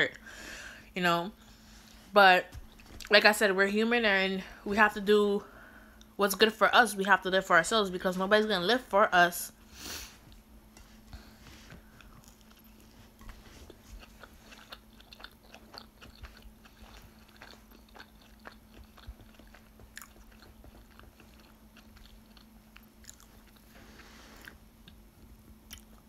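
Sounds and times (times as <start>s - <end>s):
faint steady hum: 0.0s - 26.0s
closed-mouth chewing: 11.9s - 23.8s, 25.6s - 26.0s.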